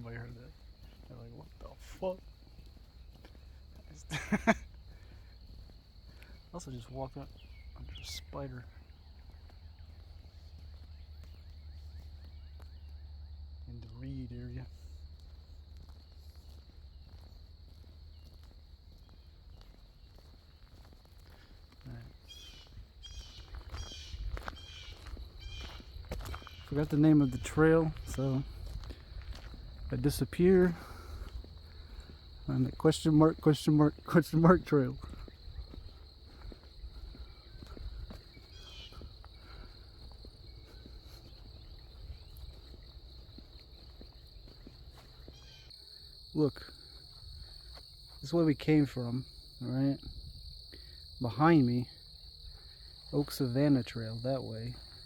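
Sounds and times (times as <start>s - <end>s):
insect trilling: 0.0s - 13.2s, 14.0s - 55.0s
bird chirp: 0.0s - 28.6s, 36.8s - 45.8s
footsteps on dirt trail: 0.0s - 55.0s
low wind rumble: 50.0s - 50.7s.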